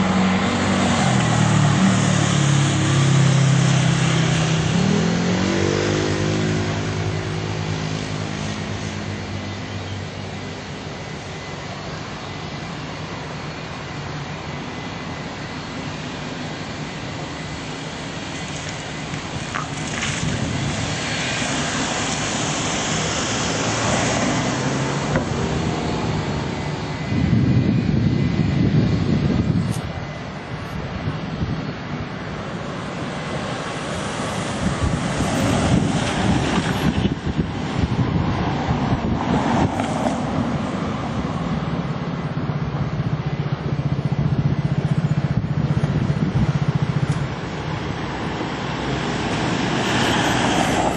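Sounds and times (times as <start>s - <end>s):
airliner engine rumble: 0.0s - 50.9s
wind on microphone: 19.3s - 50.9s.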